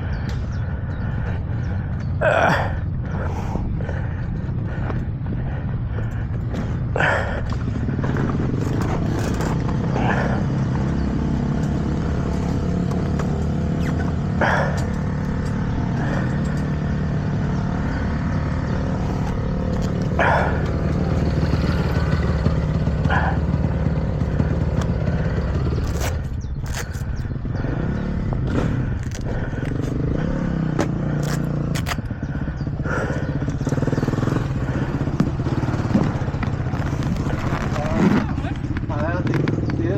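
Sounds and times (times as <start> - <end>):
motorcycle engines running: 0.0 - 39.9.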